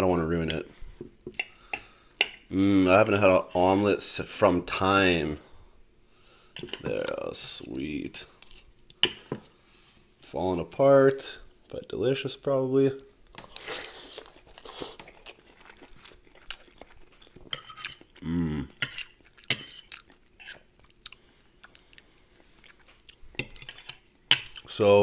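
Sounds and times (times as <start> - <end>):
chewing: 13.3 - 24.7
short vocal sound: 18.2 - 18.7.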